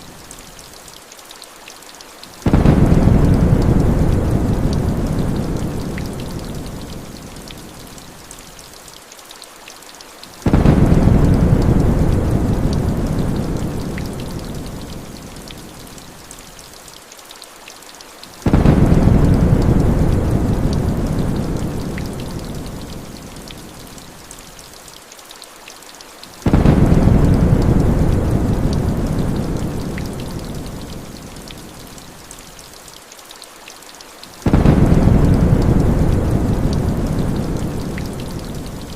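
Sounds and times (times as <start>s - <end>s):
rain hiss: 0.0s - 38.9s
deep thunder rumble: 2.5s - 6.5s, 10.5s - 14.5s, 18.5s - 22.5s, 26.5s - 30.5s, 34.5s - 38.9s.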